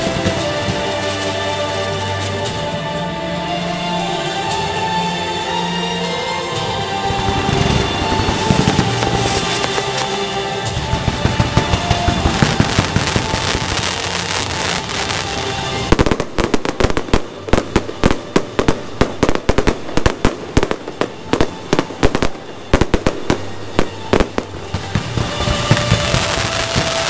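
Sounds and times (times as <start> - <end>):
fireworks crackling and hissing: 0.0 - 27.0
fireworks shells bursting: 0.0 - 27.0.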